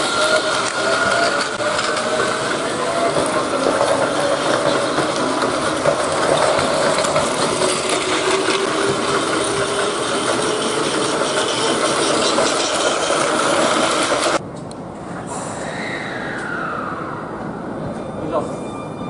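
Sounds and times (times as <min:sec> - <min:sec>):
toy trains whirring and clattering: 0:00.0 - 0:14.4.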